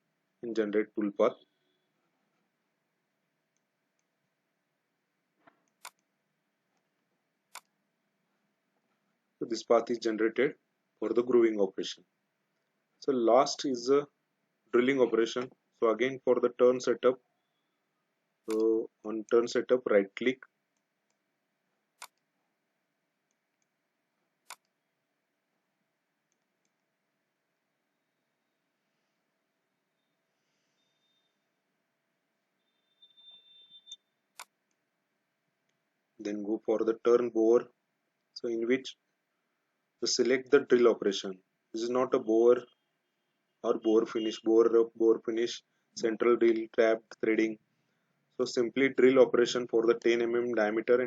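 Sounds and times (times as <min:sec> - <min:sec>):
computer mouse click: 0:05.4 - 0:06.1, 0:07.5 - 0:07.8, 0:18.5 - 0:18.7, 0:22.0 - 0:22.3, 0:24.4 - 0:24.8
faint computer mouse clicks: 0:05.4 - 0:06.1, 0:07.5 - 0:07.7.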